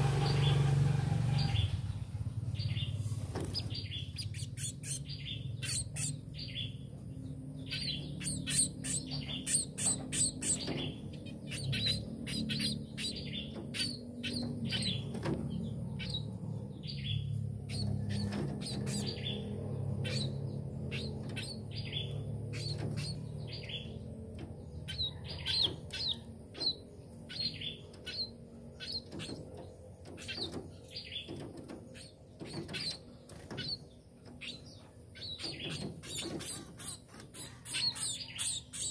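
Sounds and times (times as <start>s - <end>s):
small songbirds chirping: 0.0s - 38.9s
steady low hum: 0.0s - 38.9s.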